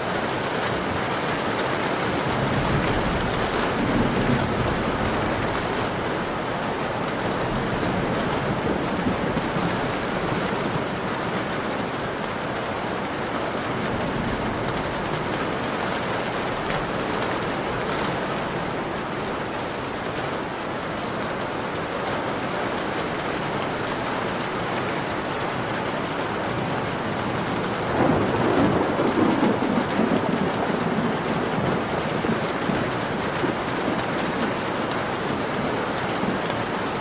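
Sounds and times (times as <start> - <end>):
rain pattering on a window: 0.0 - 37.0
thunder rumbling: 2.0 - 11.0, 25.2 - 37.0.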